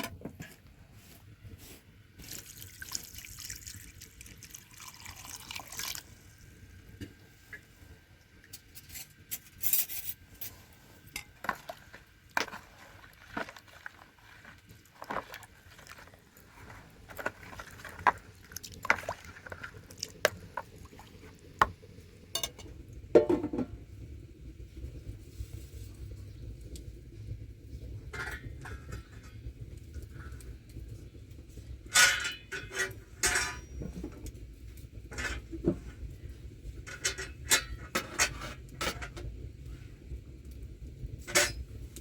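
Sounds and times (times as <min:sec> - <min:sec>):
water pouring: 0:02.2 - 0:06.8, 0:11.4 - 0:22.6.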